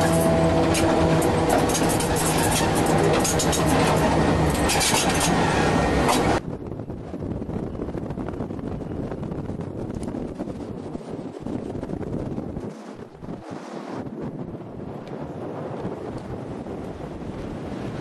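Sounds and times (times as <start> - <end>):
wheels clicking and rattling: 0.0 - 6.4
electric train rumbling: 0.0 - 18.0
wind on microphone: 0.0 - 18.0.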